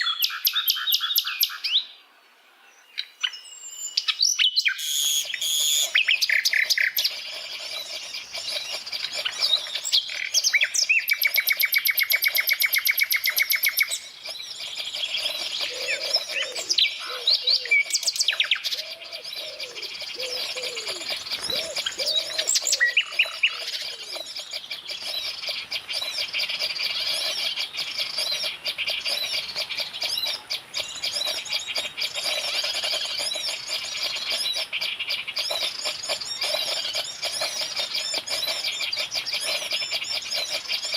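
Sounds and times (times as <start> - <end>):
birds chirping and calling: 0.0 - 2.0, 2.6 - 40.9
fast rattling bird trill: 4.7 - 40.9
low swooping bird calls: 12.6 - 40.9.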